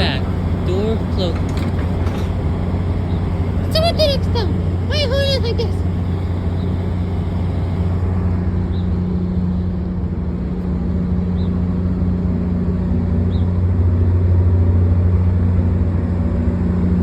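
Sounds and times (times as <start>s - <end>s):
train diesel engine idling: 0.0s - 17.0s.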